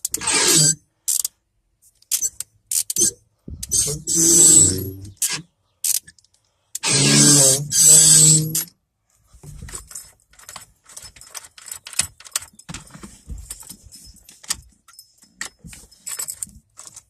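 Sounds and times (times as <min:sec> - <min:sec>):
keys jingling: 0:09.6 - 0:17.0.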